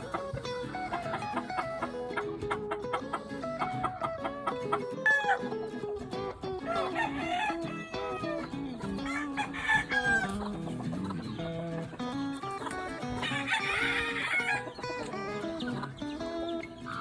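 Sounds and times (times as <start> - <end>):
background music: 0.0 - 17.0
chickens clucking: 0.0 - 17.0
roosters crowing: 0.0 - 17.0.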